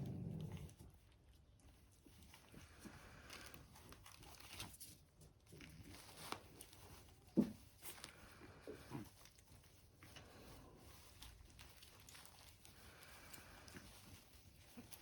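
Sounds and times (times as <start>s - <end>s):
puppies making low calls: 0.0s - 1.1s
faint scuffling and rustling: 0.0s - 15.0s.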